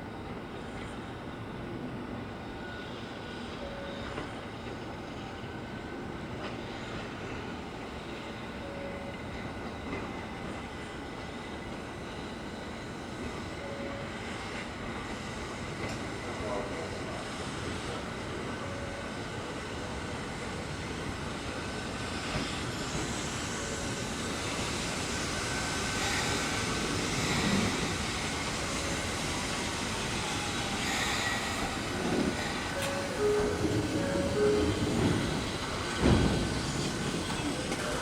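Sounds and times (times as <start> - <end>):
electric train rumbling on rails: 0.0 - 38.0
short tones: 32.7 - 35.4.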